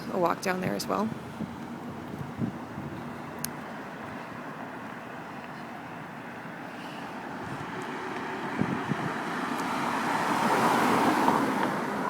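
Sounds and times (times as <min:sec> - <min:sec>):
car approaching: 0:00.0 - 0:12.0
steady outdoor hum: 0:00.0 - 0:12.0.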